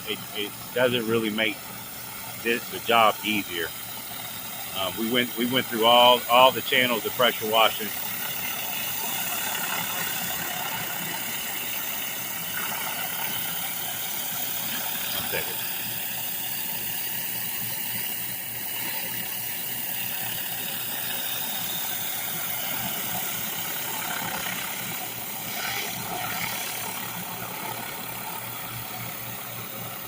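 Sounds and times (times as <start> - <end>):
water jets hissing: 0.0 - 10.4
pressure washer engine drone: 0.0 - 30.0.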